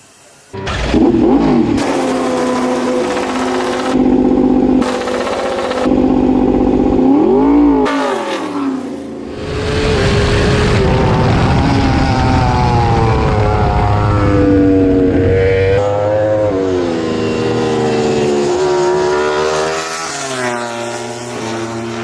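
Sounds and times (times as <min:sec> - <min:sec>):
racing motorcycle engine revving: 0:00.6 - 0:22.0.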